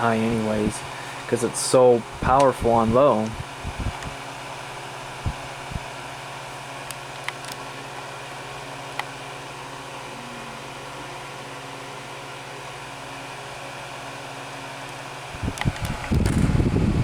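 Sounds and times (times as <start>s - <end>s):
fan clicks: 0.0s - 9.2s, 14.8s - 17.0s
electric fan humming: 0.0s - 17.0s
air blowing on microphone: 0.1s - 4.2s, 5.2s - 5.9s, 15.3s - 17.0s.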